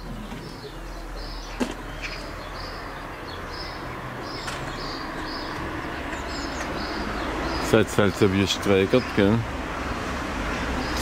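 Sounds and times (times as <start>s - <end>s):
small bird chirping: 0.0s - 8.3s.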